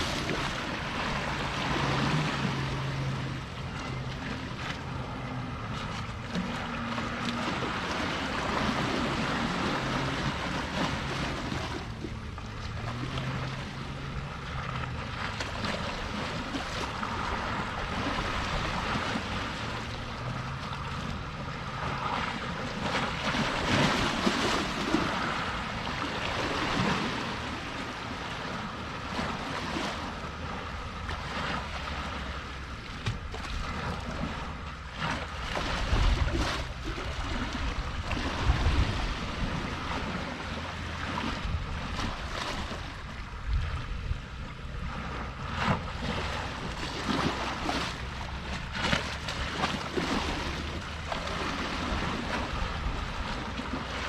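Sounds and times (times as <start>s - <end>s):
sea water splashing at shore: 0.0s - 54.0s
wind gusting on microphone: 35.8s - 40.3s, 43.4s - 46.4s.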